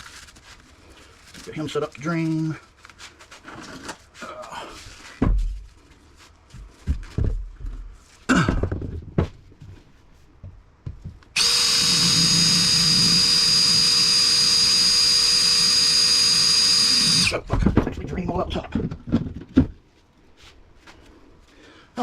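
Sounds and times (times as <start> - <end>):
handling knocks and clunks: 5.0 - 5.7, 6.5 - 11.4, 17.3 - 20.0
power drill whining: 11.4 - 17.4.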